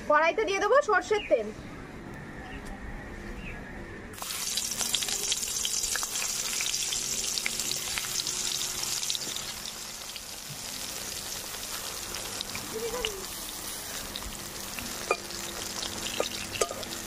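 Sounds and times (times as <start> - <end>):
eggplant sizzling in hot oil: 4.2 - 17.0.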